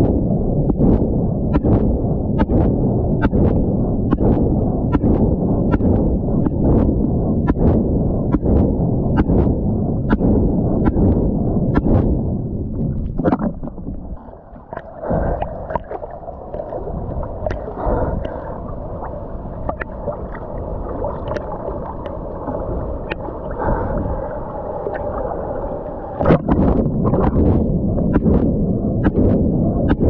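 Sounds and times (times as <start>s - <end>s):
ocean water sloshing: 11.8s - 30.0s.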